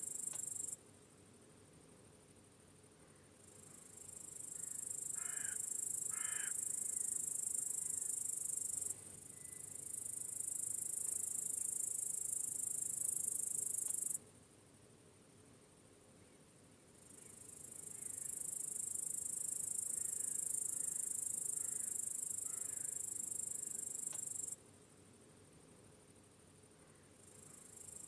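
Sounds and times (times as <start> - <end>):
cricket trilling: 3.2 - 14.2, 17.1 - 24.6
faint low hum: 14.2 - 18.4.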